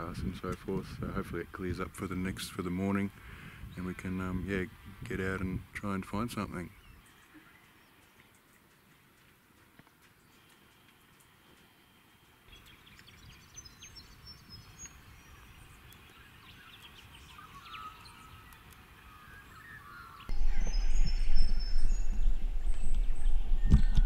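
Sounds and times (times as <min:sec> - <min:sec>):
birds chirping: 0:06.2 - 0:24.0
loud low rumble: 0:20.3 - 0:24.0.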